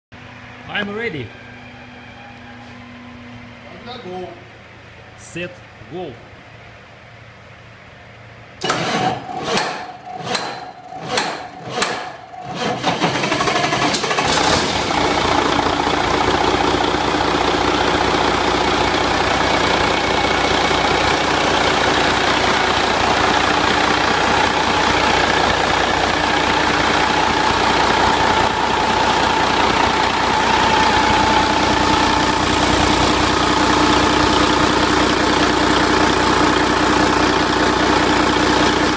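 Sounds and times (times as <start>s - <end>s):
diesel engine idling: 0.1s - 8.6s, 9.9s - 38.9s
diesel engine cranking: 8.6s - 38.9s.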